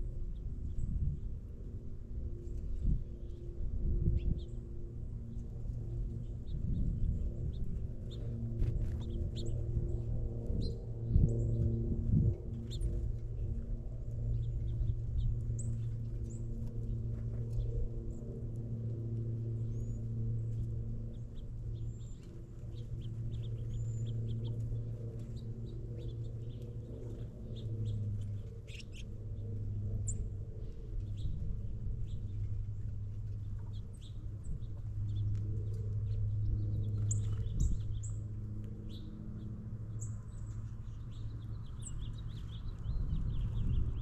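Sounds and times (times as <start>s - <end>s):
steady low hum: 0.0s - 44.0s
small birds chirping: 19.6s - 44.0s.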